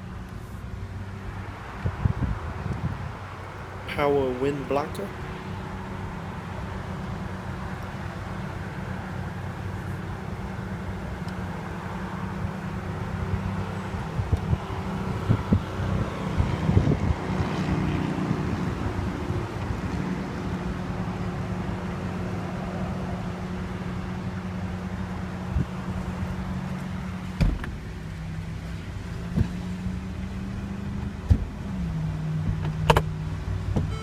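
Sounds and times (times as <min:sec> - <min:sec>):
car engine humming: 0:02.1 - 0:19.2.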